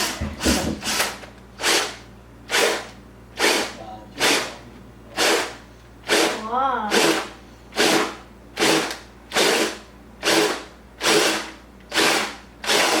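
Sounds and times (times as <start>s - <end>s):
power drill cutting gourd shell: 2.5s - 4.5s, 5.2s - 13.0s.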